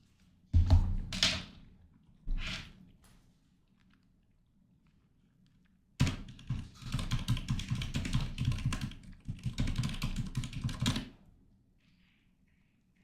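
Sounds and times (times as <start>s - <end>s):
fast typing on keyboard: 6.0s - 11.1s.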